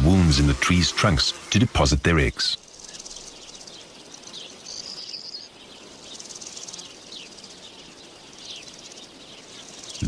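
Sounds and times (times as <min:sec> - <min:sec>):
insects trilling: 0:00.0 - 0:10.0
falling bird chirps: 0:02.5 - 0:10.0.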